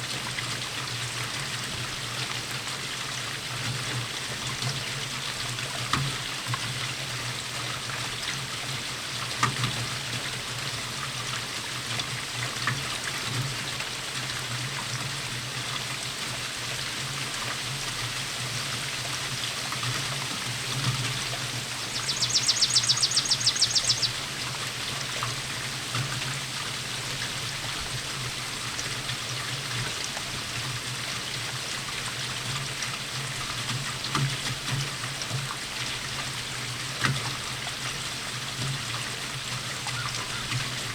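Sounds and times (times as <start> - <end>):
steady rainfall: 0.0 - 40.9
water pouring and trickling: 0.1 - 40.9
water drips: 17.3 - 30.8.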